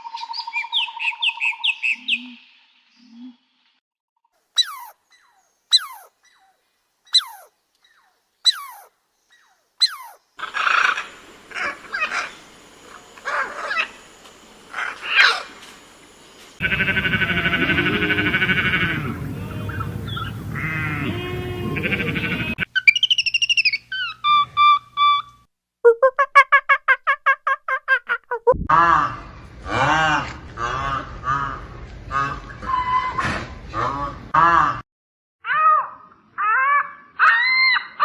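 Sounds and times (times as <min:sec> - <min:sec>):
falling animal calls: 0:09.8 - 0:14.0, 0:16.6 - 0:25.3, 0:35.5 - 0:38.0
rough noisy animal calls: 0:09.8 - 0:14.1, 0:14.7 - 0:15.6, 0:16.6 - 0:22.7.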